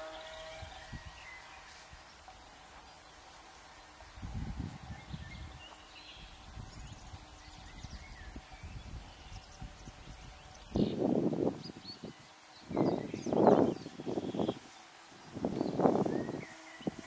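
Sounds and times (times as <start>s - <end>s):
wind buffeting microphone: 4.0s - 17.0s.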